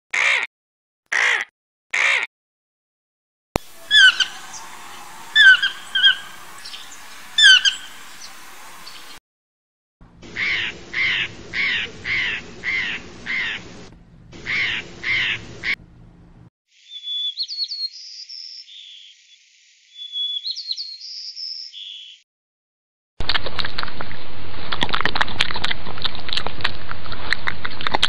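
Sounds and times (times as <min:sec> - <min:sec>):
blue jays calling harshly: 0:03.6 - 0:09.2, 0:10.2 - 0:13.8, 0:14.4 - 0:15.8
songbird chirping and whistling: 0:03.6 - 0:09.2, 0:16.8 - 0:19.2, 0:19.9 - 0:22.2.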